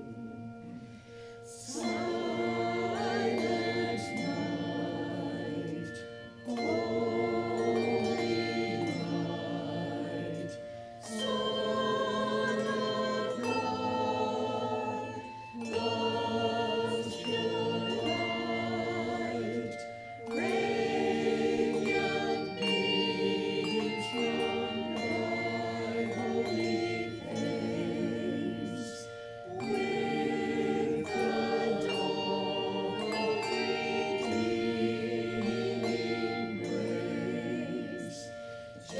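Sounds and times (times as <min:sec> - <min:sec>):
church choir singing: 0:00.0 - 0:38.9.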